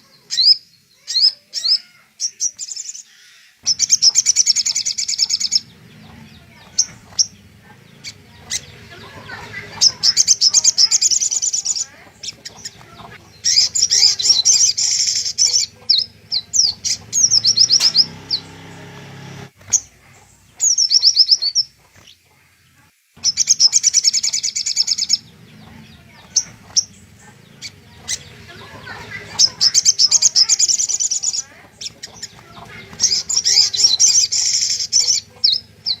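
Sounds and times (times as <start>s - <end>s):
bird rattling high chirps: 8.0s - 18.4s.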